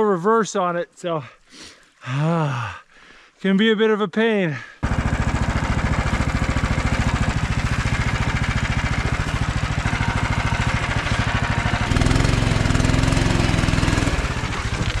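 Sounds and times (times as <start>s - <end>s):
small engine putter: 4.8s - 15.0s.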